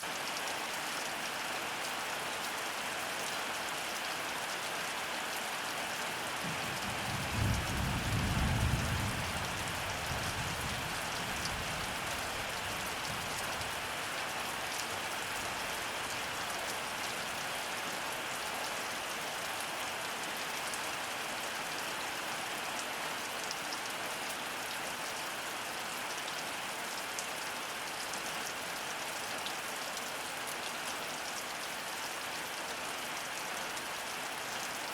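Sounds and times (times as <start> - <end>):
heavy rain falling: 0.1 - 34.9
thunder rumbling: 6.5 - 9.4.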